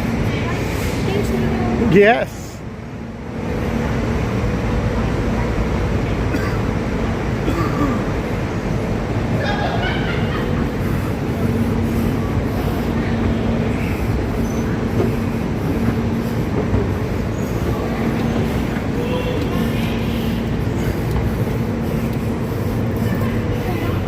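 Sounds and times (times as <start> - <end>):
subway train rumbling: 0.0 - 24.0
low motor hum: 8.2 - 24.0.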